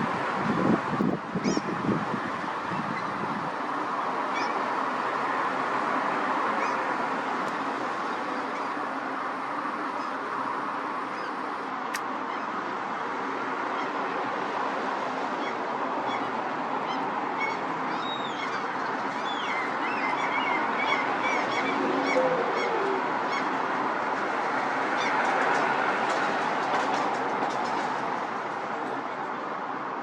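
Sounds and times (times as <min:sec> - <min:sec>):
gulls calling: 0:16.9 - 0:23.6.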